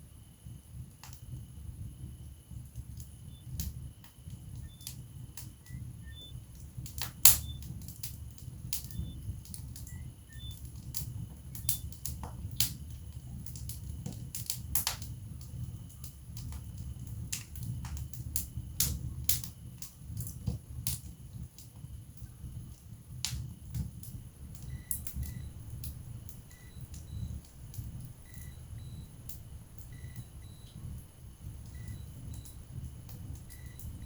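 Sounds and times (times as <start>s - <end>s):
logs crackling and popping: 6.4s - 34.0s
low steady rumble: 22.0s - 34.0s.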